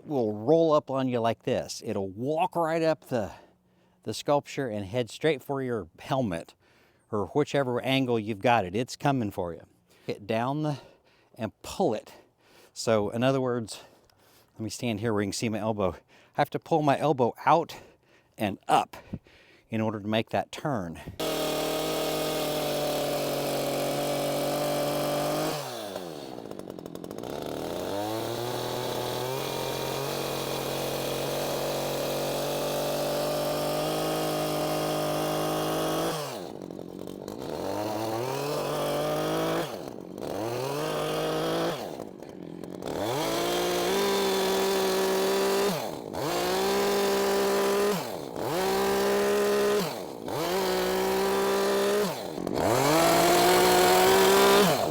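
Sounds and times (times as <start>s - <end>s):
chainsaw cutting log: 20.8s - 54.9s.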